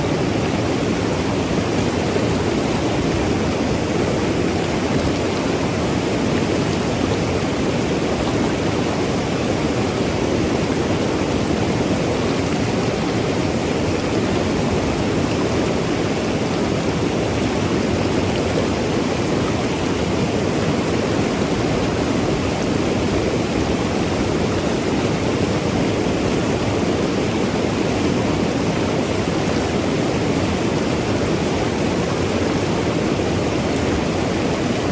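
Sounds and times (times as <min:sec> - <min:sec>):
river rushing over rocks: 0:00.0 - 0:34.9.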